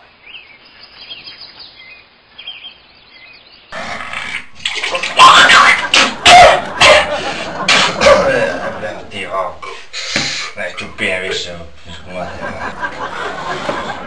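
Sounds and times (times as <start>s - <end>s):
small birds chirping: 0.0s - 3.8s
man retching: 3.8s - 8.8s.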